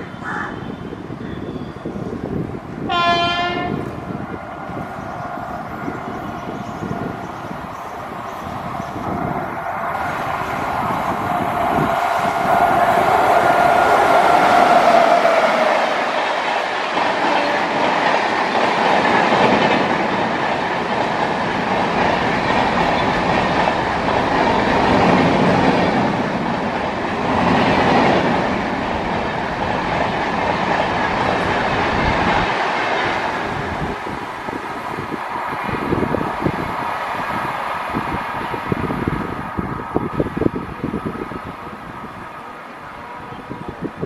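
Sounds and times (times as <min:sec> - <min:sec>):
train wheels rumbling and clattering: 0:01.9 - 0:42.4
locomotive whine: 0:02.9 - 0:18.1.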